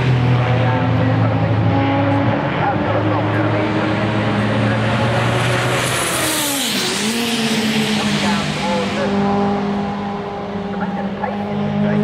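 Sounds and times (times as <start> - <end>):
racing car engines running: 0.0 - 12.0
racing car passing by: 0.0 - 12.0.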